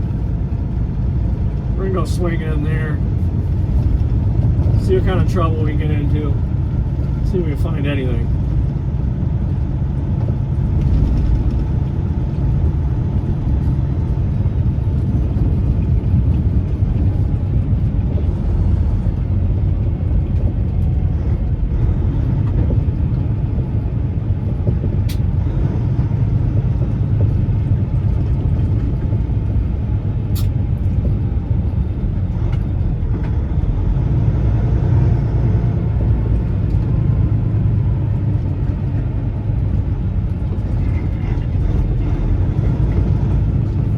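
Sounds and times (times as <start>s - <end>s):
truck engine and road noise: 0.0s - 43.9s.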